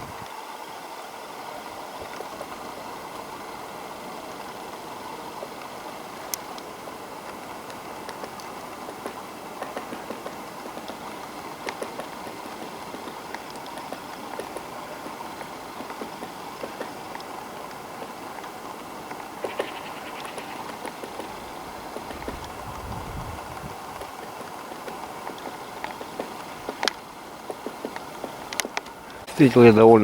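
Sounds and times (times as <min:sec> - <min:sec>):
woodpecker pecking wood: 0:05.4 - 0:22.6, 0:23.9 - 0:29.2.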